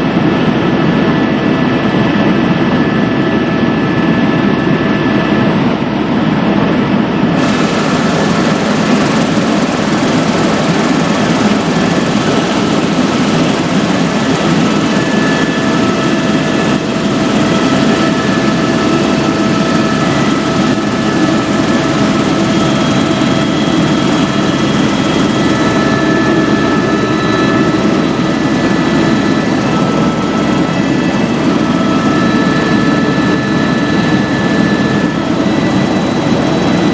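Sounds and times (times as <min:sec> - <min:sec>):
helicopter rotor and engine drone: 0:00.0 - 0:36.9.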